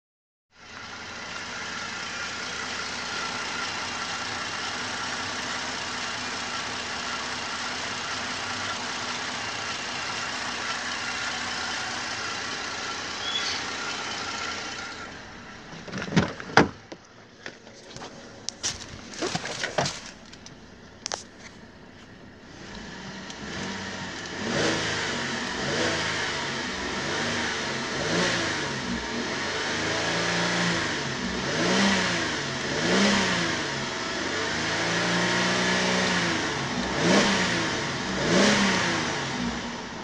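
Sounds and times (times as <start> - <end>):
car engine idling: 0.6 - 40.0
sharp knocks and clunks: 15.8 - 20.2.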